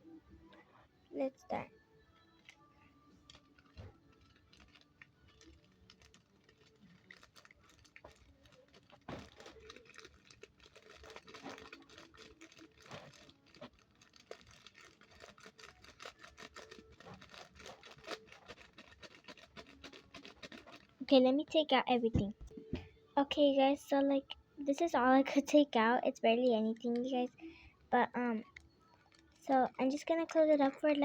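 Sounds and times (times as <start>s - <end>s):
foam beads rustling and clicking: 3.3s - 21.0s.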